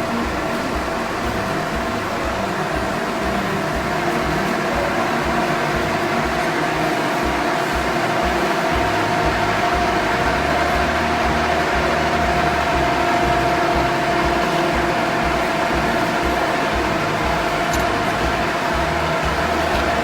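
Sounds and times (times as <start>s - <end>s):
machine whining and humming: 0.0s - 20.0s.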